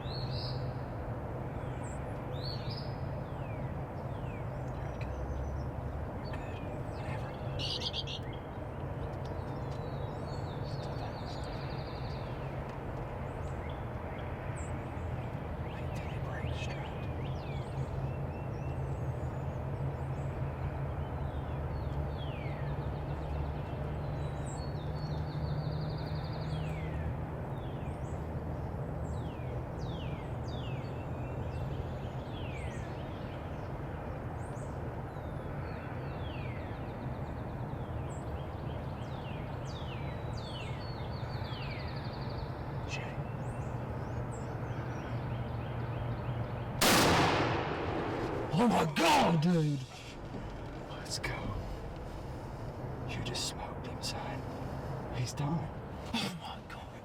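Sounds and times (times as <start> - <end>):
wild birds chirping: 0.0 - 57.0
low rumble: 46.8 - 48.7, 49.5 - 53.2.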